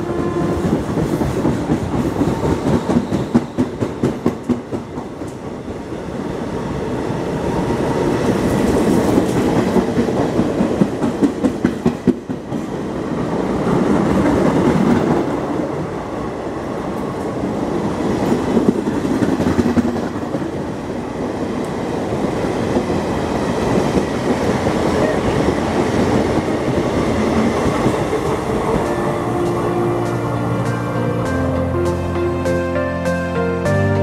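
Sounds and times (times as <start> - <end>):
train wheels rattling on rails: 0.0 - 31.0.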